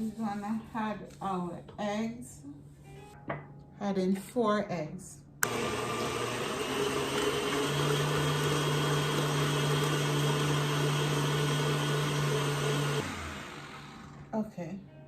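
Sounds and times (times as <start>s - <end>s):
electric mixer running: 5.4s - 14.3s.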